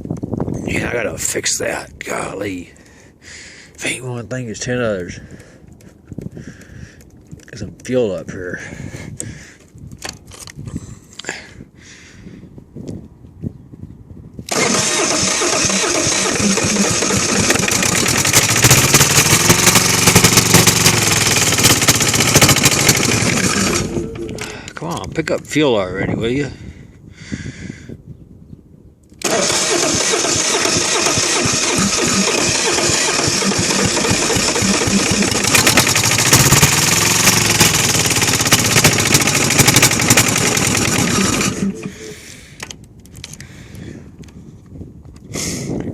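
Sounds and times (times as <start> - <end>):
diesel engine cranking: 14.5 - 24.8, 29.1 - 43.5.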